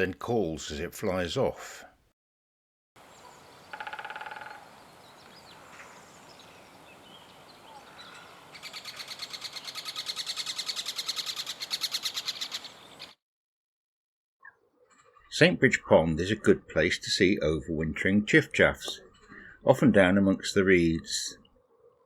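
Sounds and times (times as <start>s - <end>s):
woodpecker drumming on a branch: 3.0s - 13.1s
woodpecker kik calls: 3.0s - 13.2s.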